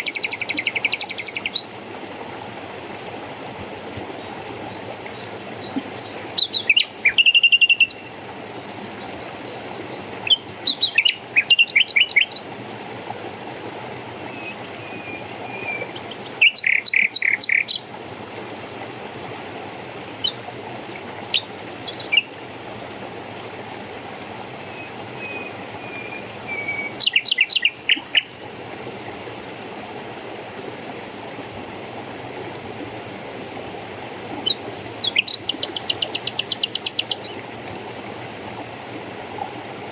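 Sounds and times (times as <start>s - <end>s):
songbird trilling: 0.0s - 1.6s, 6.4s - 8.0s, 10.3s - 12.4s, 15.6s - 17.8s, 25.2s - 28.4s, 35.0s - 37.2s
stream rushing: 0.0s - 39.9s.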